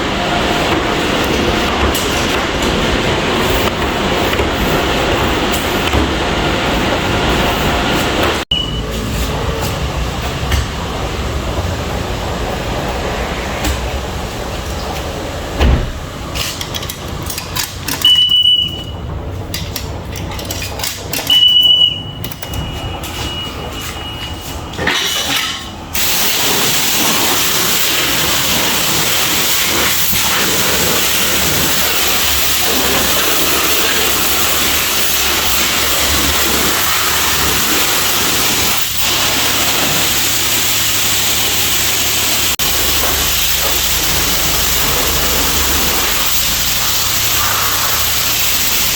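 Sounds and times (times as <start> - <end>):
high-pressure water spray hissing: 0.0 - 10.0, 26.0 - 48.9.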